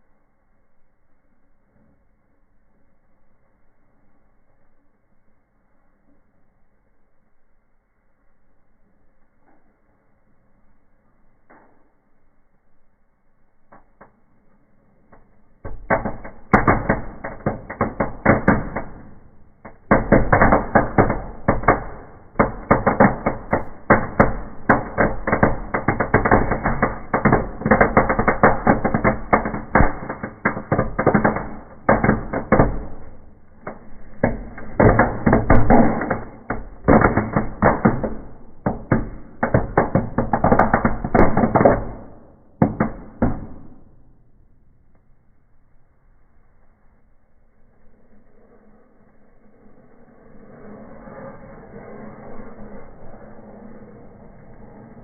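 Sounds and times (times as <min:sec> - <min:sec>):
bark crackling in a fire: 0:13.6 - 0:43.1.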